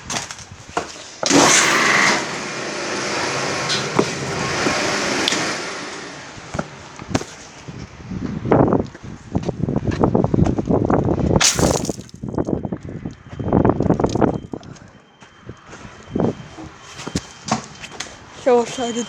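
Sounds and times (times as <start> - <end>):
pressure washer spraying: 1.2 - 5.9.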